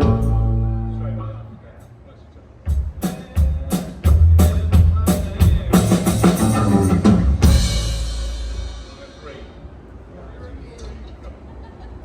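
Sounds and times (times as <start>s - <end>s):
cymbal crash: 6.1s - 9.4s.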